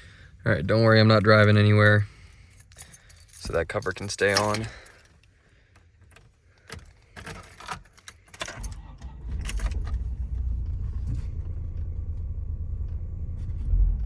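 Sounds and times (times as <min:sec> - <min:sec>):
keys jangling: 0:01.5 - 0:05.3, 0:06.0 - 0:08.8
engine starting and idling roughly: 0:08.6 - 0:13.4.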